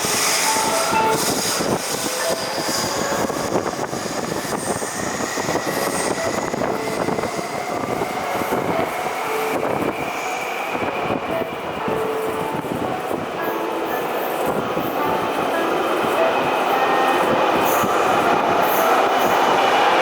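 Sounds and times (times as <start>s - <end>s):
train wheels rumbling: 0.0s - 20.0s.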